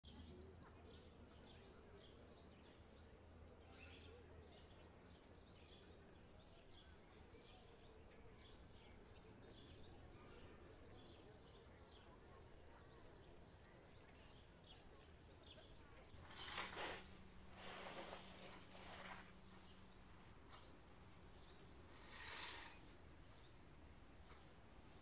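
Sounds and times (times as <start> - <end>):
small birds chirping: 0.0 - 25.0
low outdoor hum: 15.9 - 25.0.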